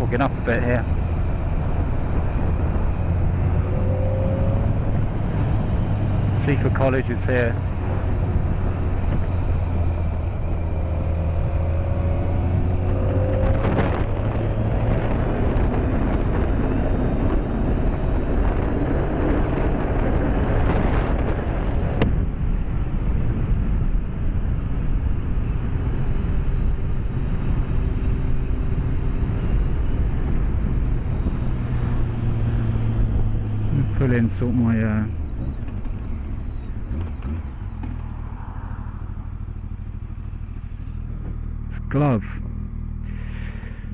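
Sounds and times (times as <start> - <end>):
wind rush: 0.0 - 33.9
motorcycle engine running: 0.0 - 43.9.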